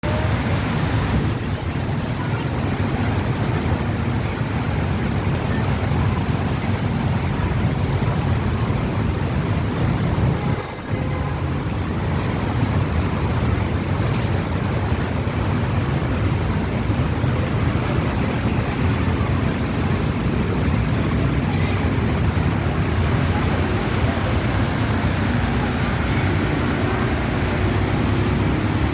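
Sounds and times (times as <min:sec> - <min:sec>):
rain hissing: 0:07.2 - 0:28.9.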